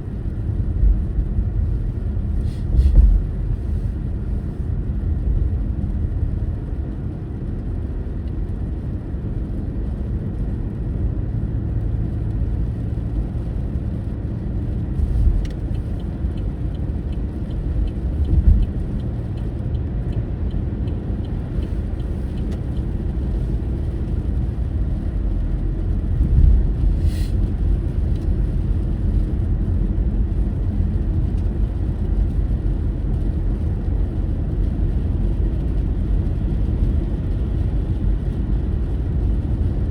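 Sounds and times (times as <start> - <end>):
car engine and road noise: 0.0 - 39.9
faint regular ticking: 15.0 - 24.5.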